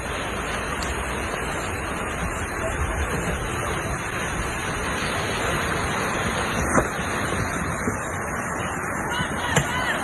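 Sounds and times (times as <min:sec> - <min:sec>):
road and wind noise in car: 0:00.0 - 0:10.0.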